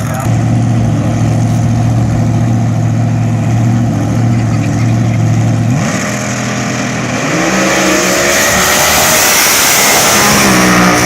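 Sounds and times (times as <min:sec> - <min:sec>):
dragster engine idling and revving: 0:00.0 - 0:11.0.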